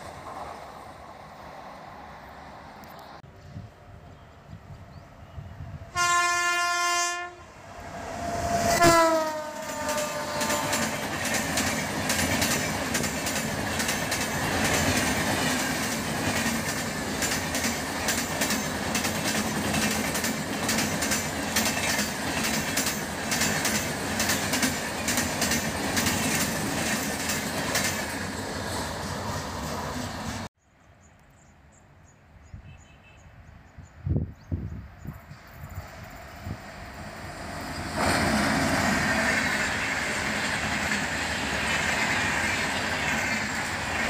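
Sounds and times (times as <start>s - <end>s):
train horn blasts: 5.9s - 11.2s
train wheels clattering on rails: 9.6s - 30.5s, 37.8s - 44.0s.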